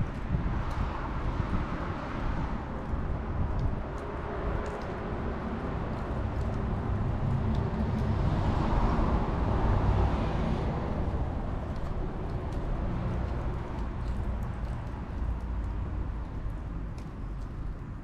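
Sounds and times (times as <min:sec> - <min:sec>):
steady outdoor rumble: 0:00.0 - 0:18.0
vehicle passing by: 0:04.3 - 0:15.1.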